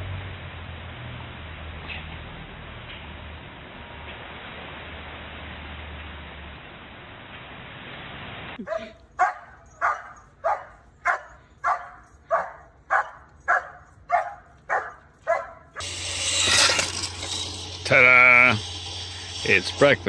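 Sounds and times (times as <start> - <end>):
dog barking: 8.6 - 15.8
steady hiss: 15.8 - 20.0.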